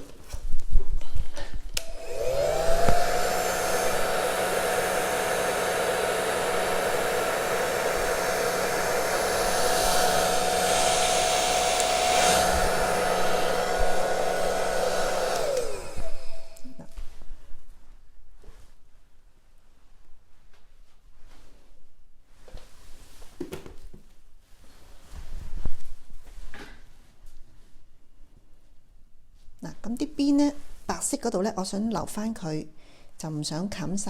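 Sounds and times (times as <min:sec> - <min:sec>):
hair dryer motor whine: 0:01.8 - 0:17.0.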